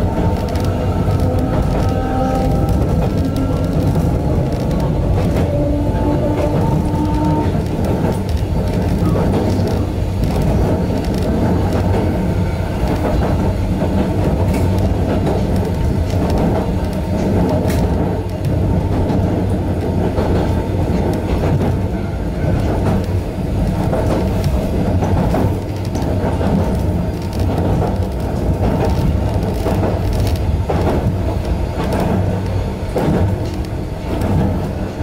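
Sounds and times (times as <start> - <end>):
train motors and wheels drone: 0.0 - 35.0.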